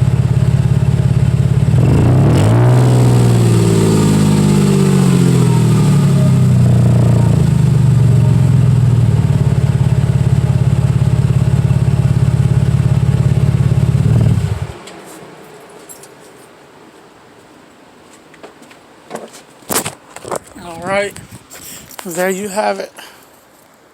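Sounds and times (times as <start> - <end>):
engine idling: 0.0 - 14.8.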